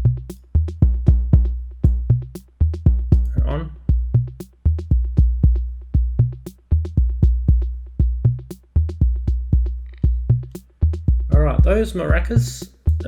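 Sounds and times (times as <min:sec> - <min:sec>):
deep booming kick drum: 0:00.0 - 0:13.0.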